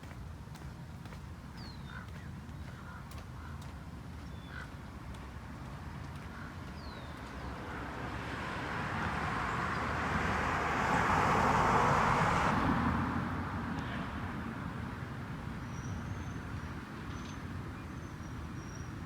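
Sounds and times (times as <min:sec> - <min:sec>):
vehicle passing by: 0:07.4 - 0:15.1.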